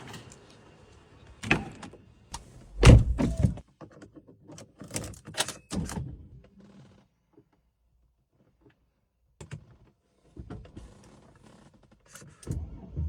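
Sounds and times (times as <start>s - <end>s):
car door thunk: 2.4s - 3.6s.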